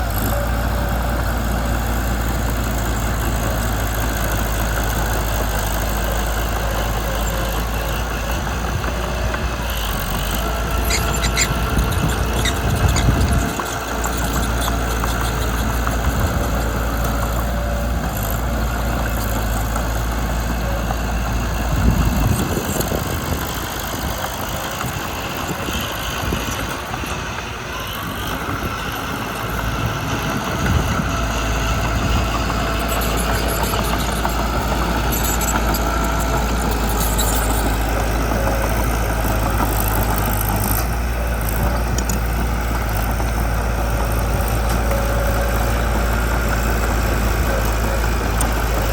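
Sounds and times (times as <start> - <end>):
bulldozer diesel engine: 0.0 - 48.9.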